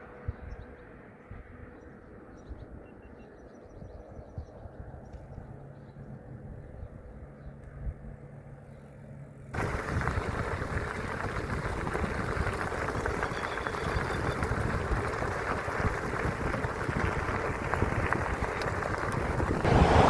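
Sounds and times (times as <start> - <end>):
low outdoor rumble: 3.4 - 20.0
loud wind rushing on microphone: 9.6 - 20.0.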